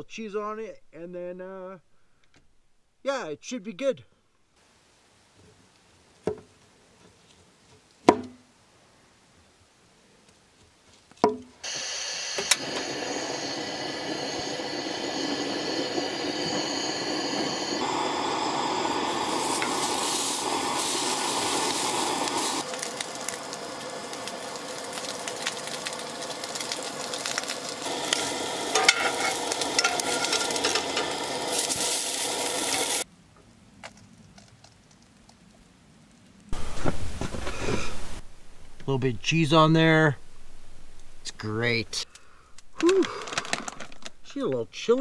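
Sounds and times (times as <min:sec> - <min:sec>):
sausages sizzling in a pan: 0:11.6 - 0:33.1.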